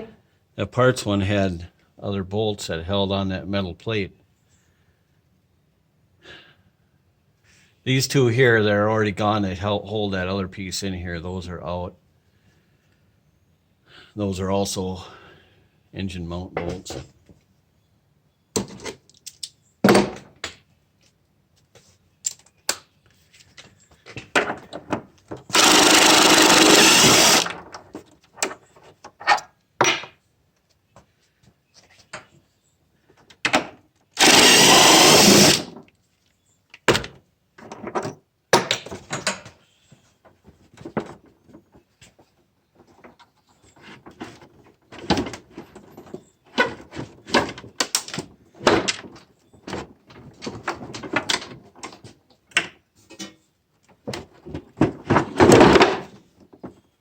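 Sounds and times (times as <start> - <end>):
impact wrench running: 25.5 - 27.6, 34.2 - 35.7.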